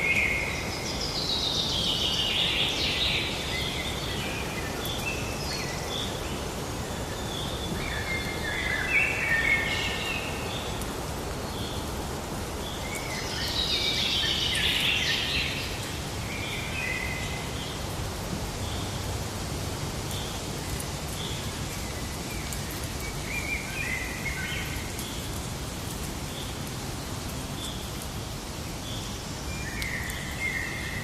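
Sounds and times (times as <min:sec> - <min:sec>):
steady background hiss: 0:00.0 - 0:31.0
birds calling and singing: 0:12.6 - 0:17.8.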